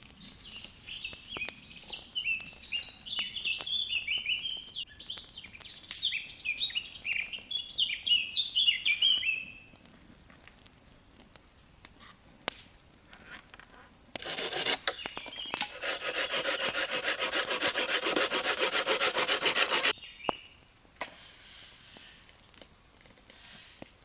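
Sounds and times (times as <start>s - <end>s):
hand saw cutting wood: 14.2s - 15.0s, 15.6s - 19.9s.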